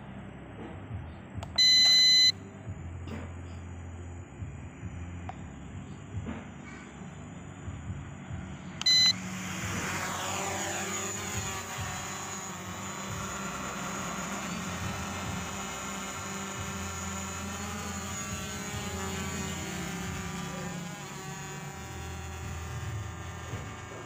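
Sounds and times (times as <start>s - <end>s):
drone propellers whirring: 8.0s - 24.0s.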